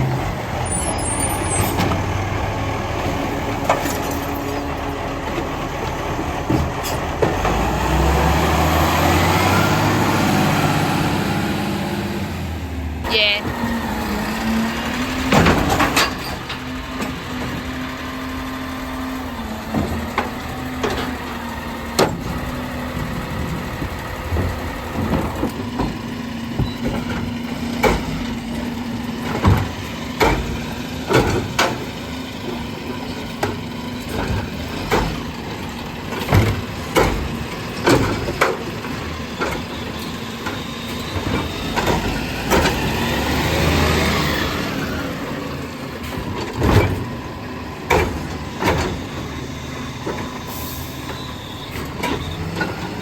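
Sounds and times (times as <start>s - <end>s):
garbage truck engine hum: 0.0s - 53.0s
sharp knocks and clunks: 6.4s - 7.8s, 24.2s - 32.6s, 36.1s - 39.8s, 47.8s - 49.2s.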